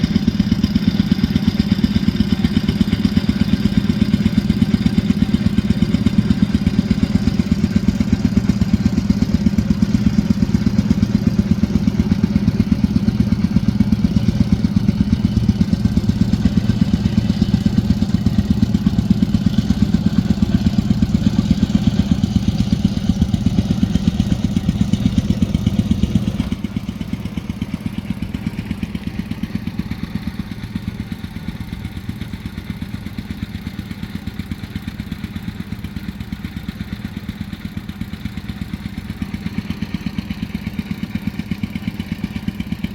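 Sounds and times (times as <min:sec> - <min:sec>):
small engine idling: 0:00.0 - 0:42.9.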